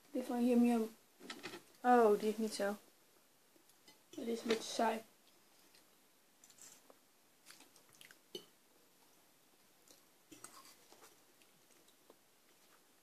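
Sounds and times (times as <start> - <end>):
people chewing noodles: 5.3 - 9.0, 9.7 - 13.0.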